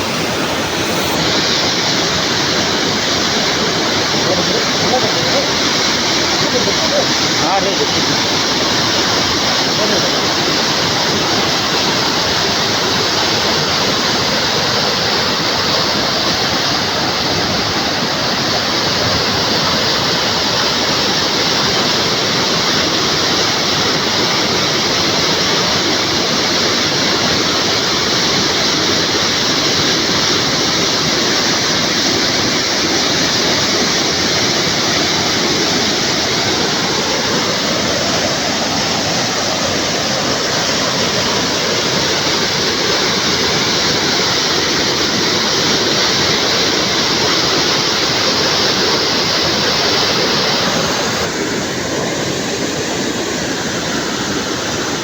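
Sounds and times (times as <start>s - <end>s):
loud rushing noise: 0.0s - 13.2s.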